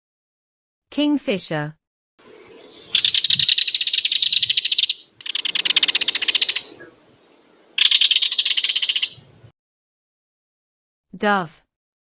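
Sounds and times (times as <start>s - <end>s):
kingfisher rattling call: 2.2s - 9.3s.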